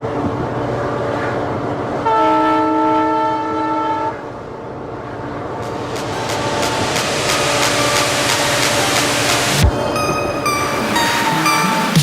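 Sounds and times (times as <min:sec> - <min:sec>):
train running: 0:00.0 - 0:12.0
locomotive horn blast: 0:02.0 - 0:04.3, 0:05.8 - 0:09.6.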